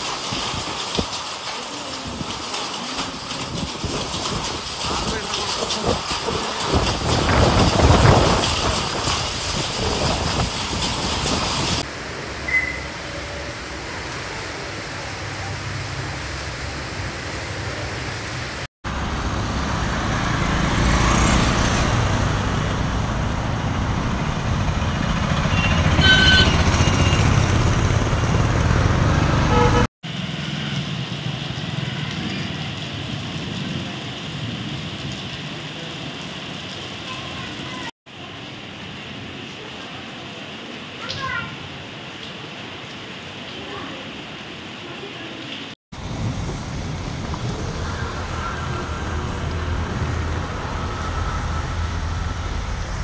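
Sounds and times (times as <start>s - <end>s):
rain and wind hissing: 0.0s - 26.0s, 26.7s - 53.0s
traffic on wet road: 0.0s - 53.0s
motorbikes passing: 11.8s - 32.8s, 46.0s - 53.0s.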